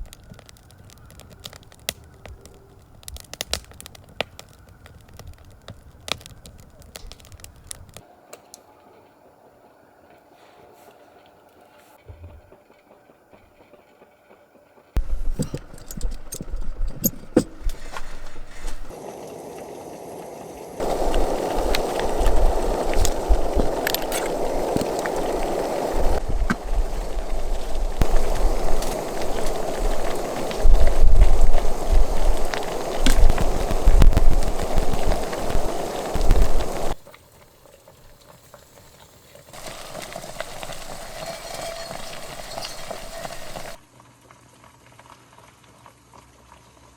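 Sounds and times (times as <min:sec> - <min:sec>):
fire hiss: 0:00.0 - 0:08.7, 0:15.0 - 0:43.8
wood fire crackling and popping: 0:00.0 - 0:08.7, 0:15.0 - 0:43.8
deep rumble: 0:20.8 - 0:37.0.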